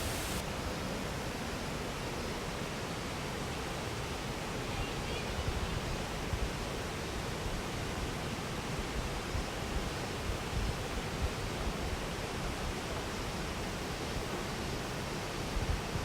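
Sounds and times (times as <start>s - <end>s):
waterfall roaring: 0.0s - 4.7s.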